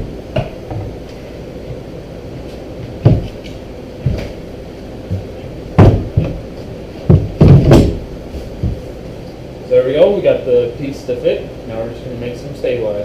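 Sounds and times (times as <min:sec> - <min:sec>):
wooden panel knocking against boat: 0:03.0 - 0:03.3, 0:05.1 - 0:06.4.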